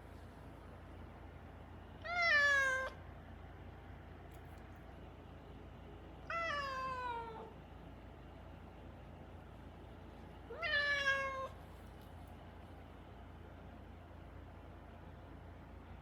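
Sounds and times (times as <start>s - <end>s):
cat meowing: 2.0s - 3.0s, 6.2s - 7.5s, 10.5s - 11.6s.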